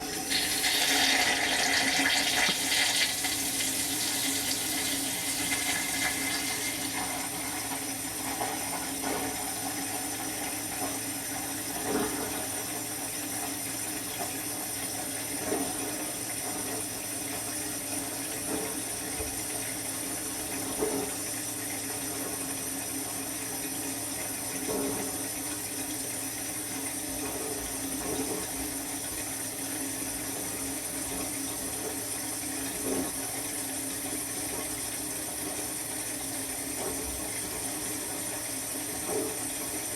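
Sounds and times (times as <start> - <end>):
dishwasher water spraying: 0.0 - 7.5.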